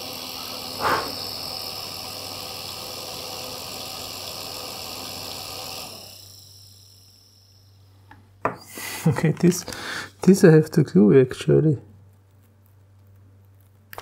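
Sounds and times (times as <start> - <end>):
small electric motor whining: 0.0 - 7.9.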